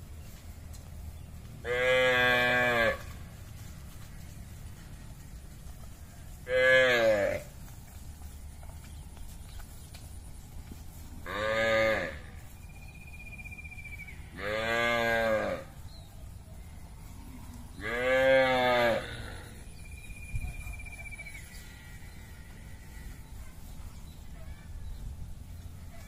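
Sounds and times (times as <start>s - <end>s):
cattle mooing: 1.6s - 3.2s, 6.4s - 7.5s, 11.2s - 12.3s, 14.3s - 15.7s, 17.1s - 19.7s.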